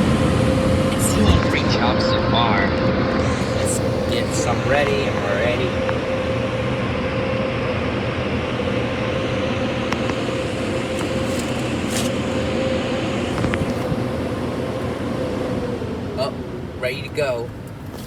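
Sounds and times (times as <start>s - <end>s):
car wash dryer blowers rushing: 0.0s - 18.0s
constant whine: 0.0s - 18.0s.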